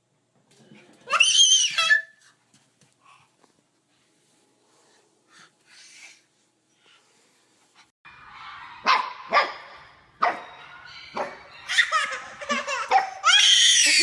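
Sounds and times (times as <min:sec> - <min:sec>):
dog barking: 0:08.3 - 0:12.3
baby laughing: 0:11.6 - 0:14.0.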